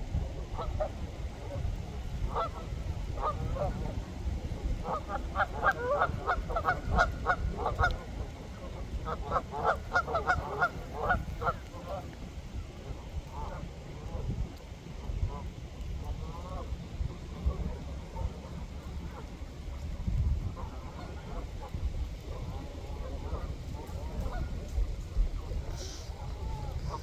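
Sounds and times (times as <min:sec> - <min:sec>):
waterfowl honking calls: 0:02.3 - 0:03.8, 0:04.8 - 0:12.0.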